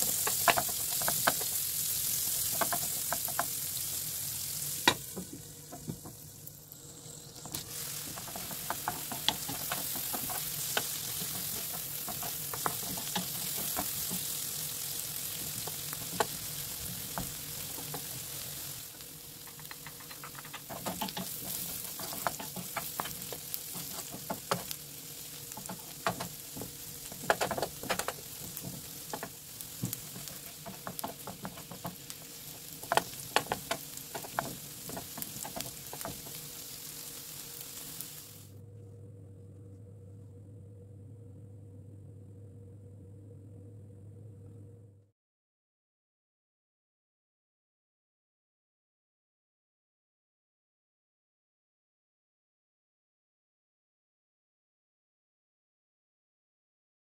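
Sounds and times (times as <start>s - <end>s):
utensil tapping and scraping pan: 0.0s - 3.6s, 7.4s - 14.5s, 15.3s - 18.4s, 19.4s - 37.3s
food sizzling in a frying pan: 0.0s - 38.5s.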